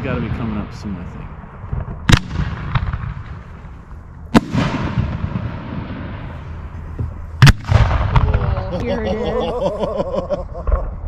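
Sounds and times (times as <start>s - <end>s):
firework booms: 0.0s - 8.8s.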